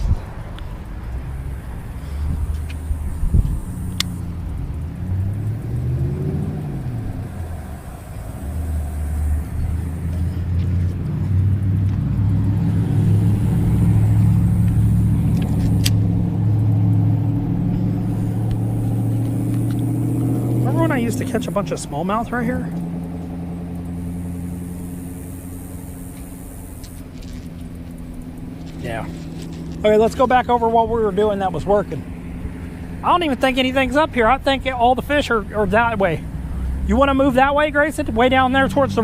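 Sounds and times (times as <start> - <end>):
steady engine hum: 0.0 - 39.0
vehicle engines passing: 0.0 - 39.0
sharp clicks: 2.5 - 4.9.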